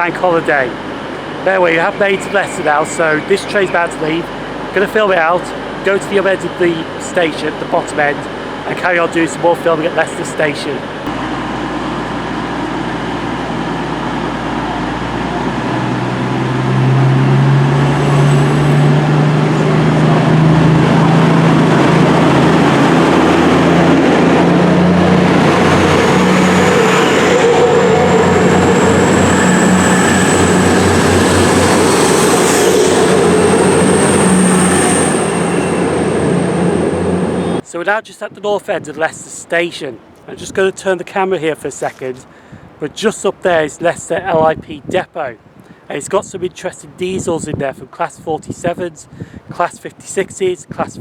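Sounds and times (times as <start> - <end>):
diesel train engines accelerating: 0.0 - 37.7
thin high whine: 0.0 - 37.7.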